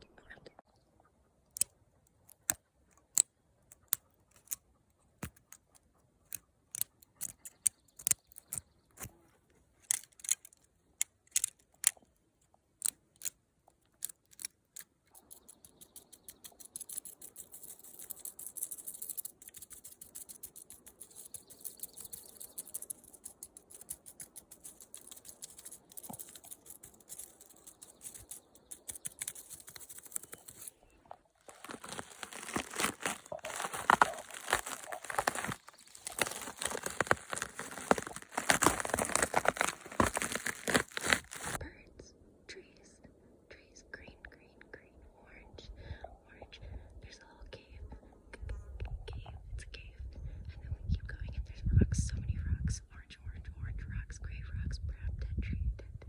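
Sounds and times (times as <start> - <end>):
crackling rustle: 15.2 - 41.6.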